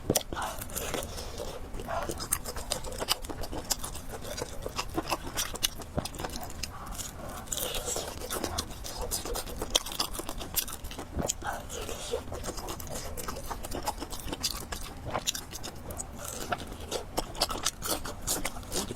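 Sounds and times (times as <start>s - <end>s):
person chewing and slurping noodles: 0.0s - 18.9s.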